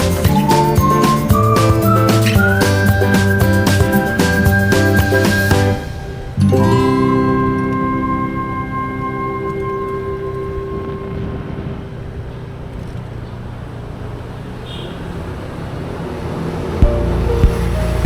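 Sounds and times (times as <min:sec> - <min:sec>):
music with thumping beat: 0:00.0 - 0:05.8, 0:16.8 - 0:18.0
background music: 0:00.0 - 0:11.8, 0:16.8 - 0:18.0
motorcycle engine and road rumble: 0:00.0 - 0:18.0.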